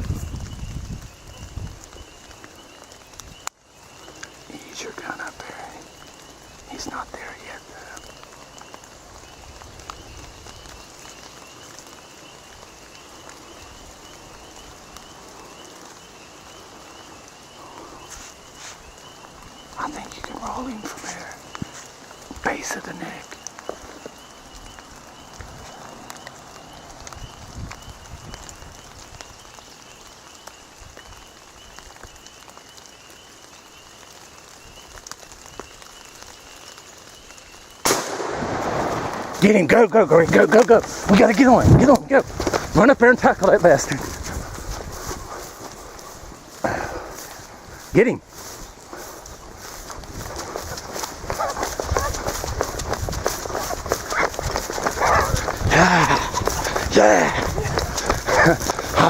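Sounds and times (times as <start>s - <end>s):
steady rain falling: 0.0s - 59.0s
loud gunshot: 37.9s - 39.4s.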